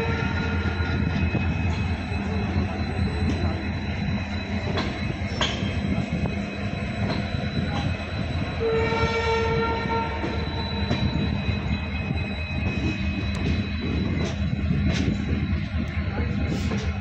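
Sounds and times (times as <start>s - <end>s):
train horn: 0.0s - 0.8s, 8.6s - 10.4s
train rumbling: 0.0s - 17.0s
rail-joint clicks: 0.1s - 8.6s, 9.5s - 17.0s.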